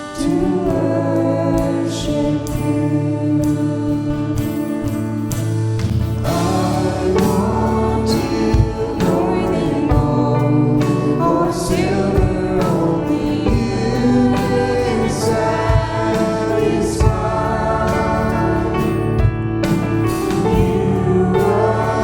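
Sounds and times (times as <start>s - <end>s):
group of singers: 0.0s - 22.0s
worship band playing: 0.0s - 22.0s
steady drum beat: 5.4s - 22.0s.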